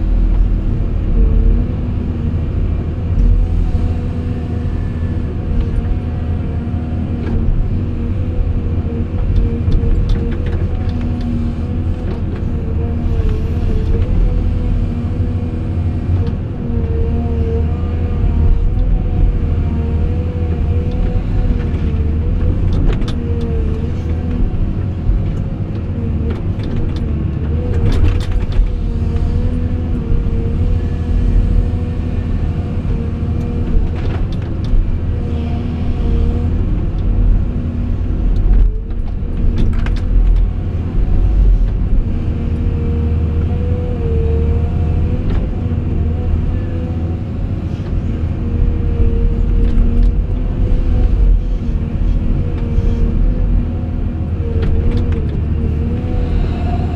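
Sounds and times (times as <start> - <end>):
excavator diesel rumble: 0.0 - 56.9
whine: 55.8 - 56.9.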